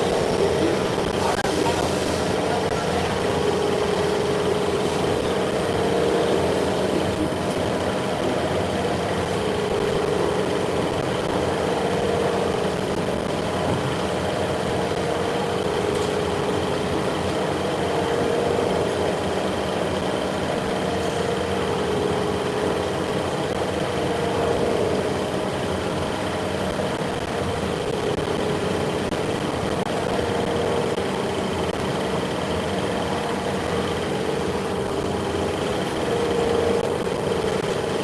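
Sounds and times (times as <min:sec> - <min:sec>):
faint high whine: 0:00.0 - 0:38.0
machine humming: 0:00.0 - 0:38.0.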